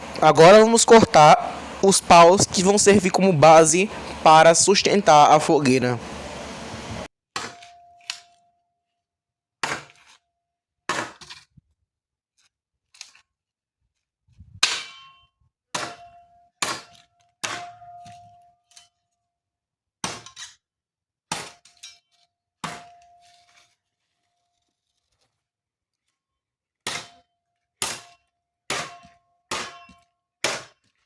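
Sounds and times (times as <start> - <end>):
metal blade chopping wooden sticks: 28.7 - 30.7.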